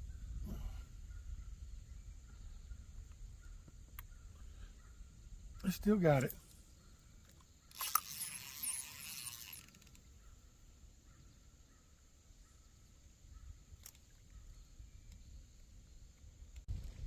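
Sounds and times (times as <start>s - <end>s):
wind rumbling on microphone: 0.0s - 5.7s, 13.3s - 17.0s.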